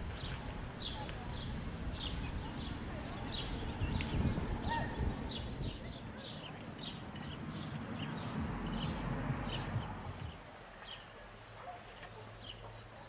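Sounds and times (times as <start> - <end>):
songbirds chirping: 0.0 - 13.0
low rumble: 7.4 - 10.4.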